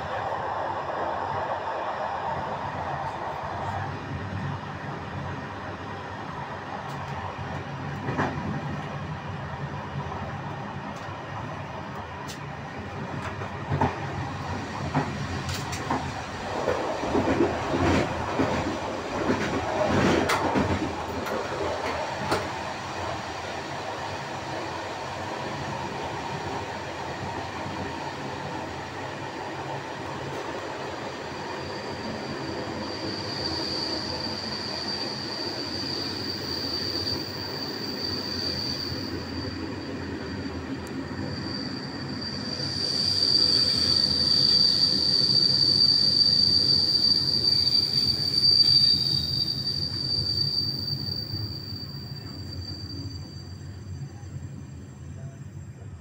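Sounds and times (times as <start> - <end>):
high wheel squeal: 31.4 - 54.3.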